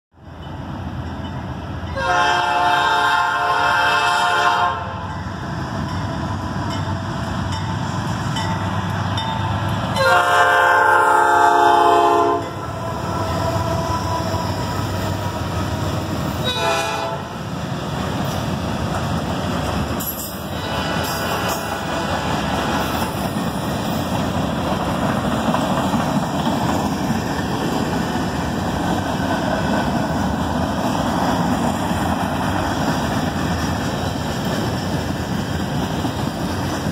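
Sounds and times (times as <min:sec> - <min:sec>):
freight train rumbling past: 0:00.2 - 0:36.9
train air horn blasts: 0:01.9 - 0:05.1, 0:10.0 - 0:14.7, 0:16.4 - 0:17.4, 0:20.6 - 0:22.0.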